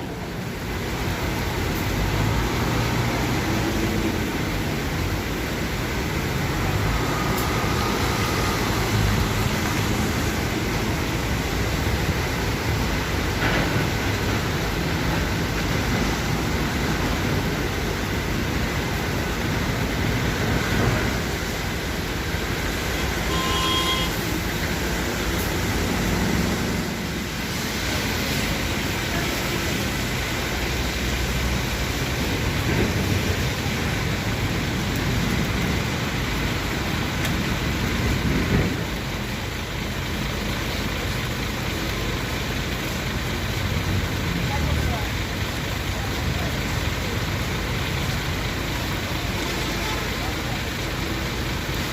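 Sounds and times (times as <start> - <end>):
motor vehicle road noise: 0.0 - 51.9
high beep: 23.2 - 24.2.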